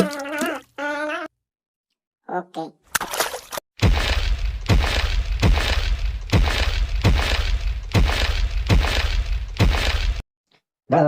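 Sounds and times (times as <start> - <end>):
sharp crashing cracking impacts: 3.8 - 10.2.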